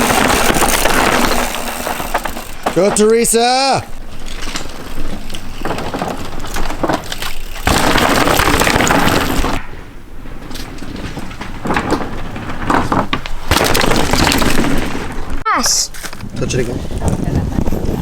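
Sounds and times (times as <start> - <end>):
bike clicks: 0.0 - 17.9
mountain bike rattling over rocks: 0.0 - 18.0.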